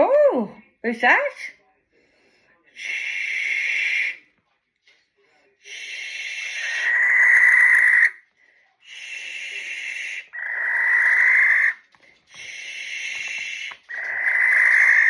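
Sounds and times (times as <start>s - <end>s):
owl screeching: 2.8s - 4.2s, 5.7s - 8.2s, 8.9s - 11.8s, 12.4s - 15.0s.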